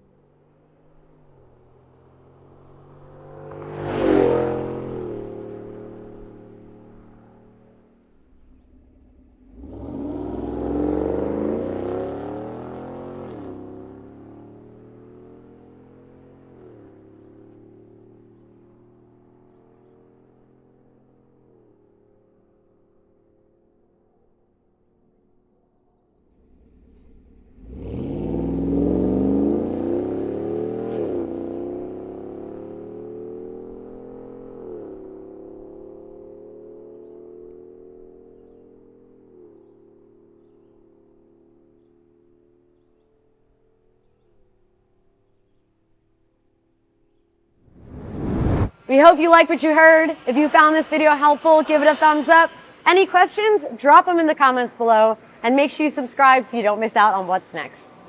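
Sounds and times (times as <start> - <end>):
car engine idling and revving: 0.1 - 20.7, 26.3 - 38.6, 47.7 - 48.7.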